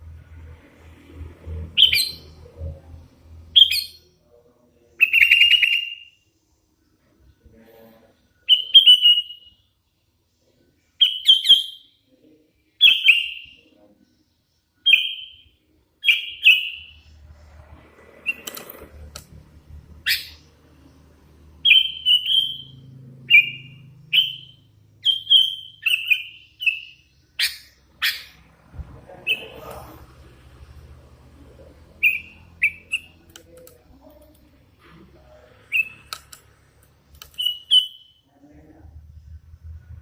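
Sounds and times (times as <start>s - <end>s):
young bulbul chirping: 20.0s - 20.5s, 21.6s - 28.4s, 32.0s - 33.6s, 37.2s - 38.2s.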